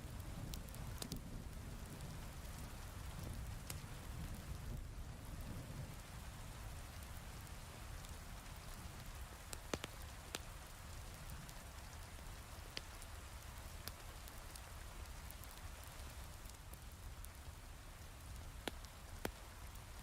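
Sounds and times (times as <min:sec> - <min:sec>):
fireplace crackling pops: 0:00.5 - 0:01.2, 0:09.0 - 0:10.5, 0:11.9 - 0:14.4, 0:18.1 - 0:19.9.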